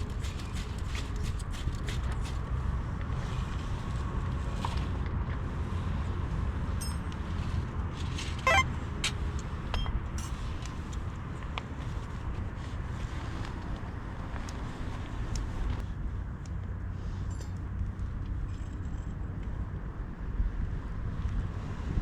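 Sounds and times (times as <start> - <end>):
brief ringing tone: 8.5 - 8.7.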